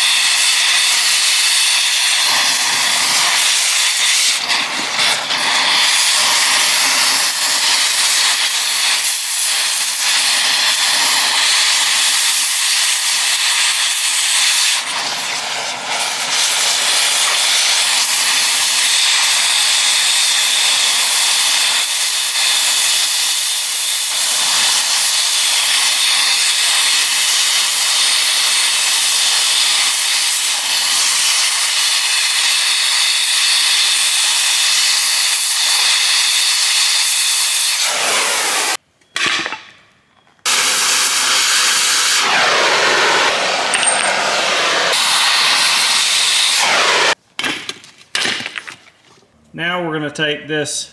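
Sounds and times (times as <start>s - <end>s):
cutting torch hissing: 0.0s - 38.8s, 40.4s - 47.2s.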